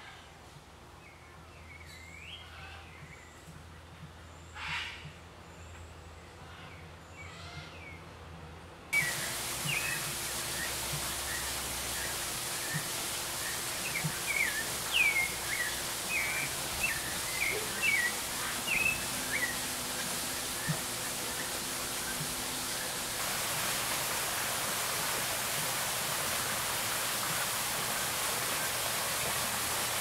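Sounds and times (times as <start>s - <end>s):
birds chirping hooked calls: 9.0s - 23.2s
steady hiss: 9.0s - 30.0s.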